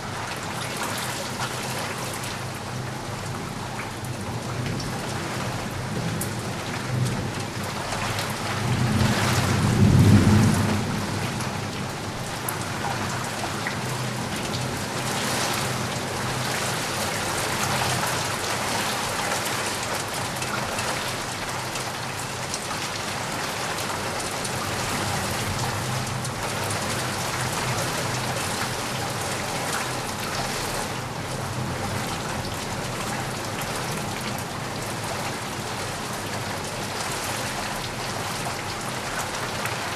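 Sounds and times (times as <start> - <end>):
steady rain falling: 0.0 - 39.9
low rumble of thunder: 5.8 - 15.5.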